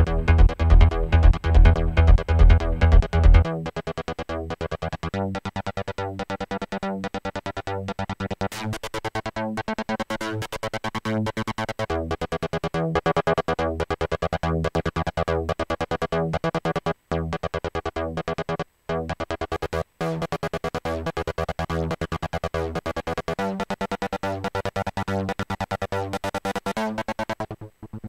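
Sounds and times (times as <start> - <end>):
synth bass line: 0.0 - 8.6, 11.6 - 23.0
synthesizer trance riff: 0.0 - 28.0.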